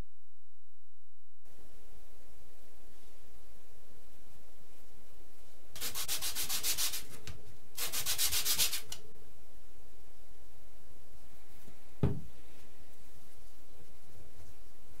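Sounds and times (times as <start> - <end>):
sandpaper strokes: 5.8 - 7.2, 7.8 - 8.9.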